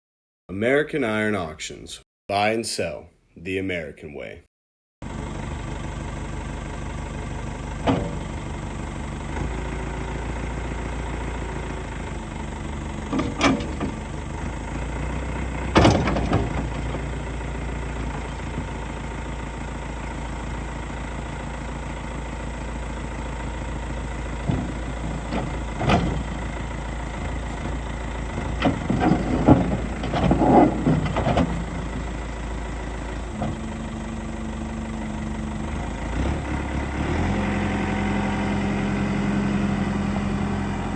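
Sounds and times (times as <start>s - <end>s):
diesel engine running: 5.0s - 40.9s
metallic knocks and clanks: 13.1s - 14.1s, 15.7s - 16.9s, 28.4s - 31.7s.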